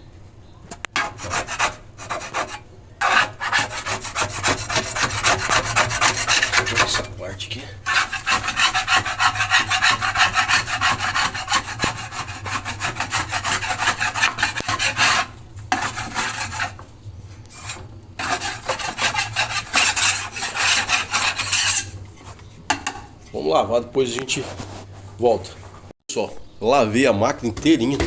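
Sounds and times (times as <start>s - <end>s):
sponge scrubbing: 1.0s - 7.1s, 7.9s - 16.8s, 17.6s - 21.9s.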